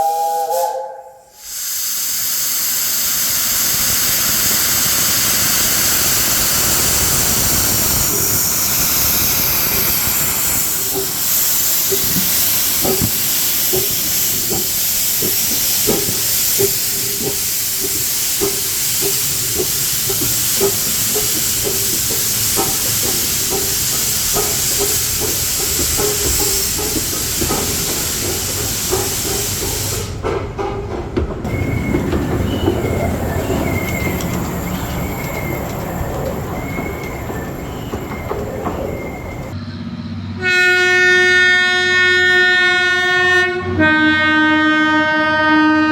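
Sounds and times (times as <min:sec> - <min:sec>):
locomotive whistle: 0:00.0 - 0:01.4, 0:31.5 - 0:39.6, 0:40.4 - 0:45.9
steam locomotive hissing and knocking: 0:00.0 - 0:39.6.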